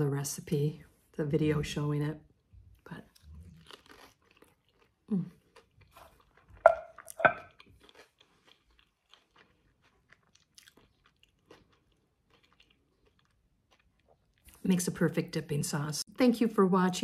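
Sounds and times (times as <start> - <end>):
person chewing crispy food: 2.8 - 14.6.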